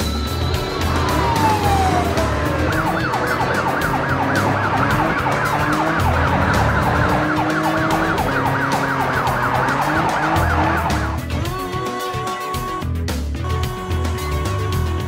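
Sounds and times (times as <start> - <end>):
police siren yelping: 0.0 - 11.3
background music with bass line: 0.0 - 15.0.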